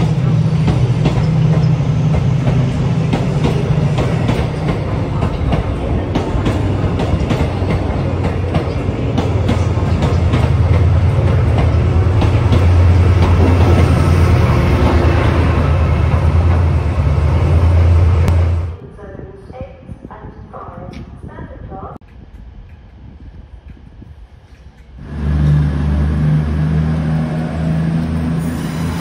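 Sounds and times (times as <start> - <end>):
train wheels clicking over rail joints: 0.0 - 16.9
diesel locomotive engine running: 0.0 - 18.8, 25.0 - 29.0.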